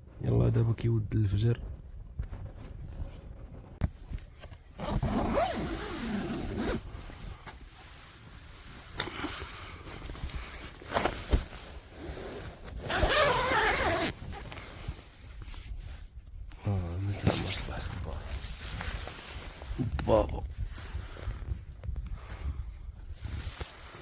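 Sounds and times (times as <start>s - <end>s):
tent fabric rustling: 2.8s - 16.3s, 17.1s - 19.8s, 23.1s - 24.0s
tent zipper pulled open: 4.7s - 7.2s, 8.8s - 15.0s.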